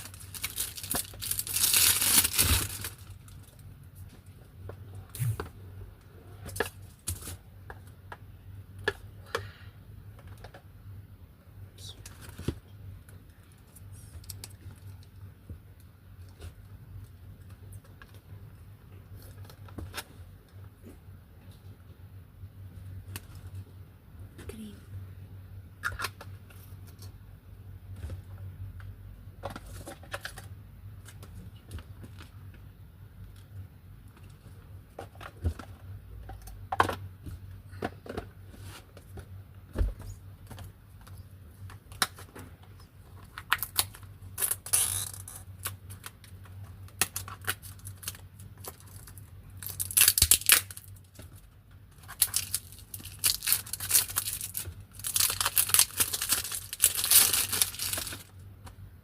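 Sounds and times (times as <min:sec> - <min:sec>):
packaging crinkling and tearing: 0:00.0 - 0:03.6, 0:43.2 - 0:58.4.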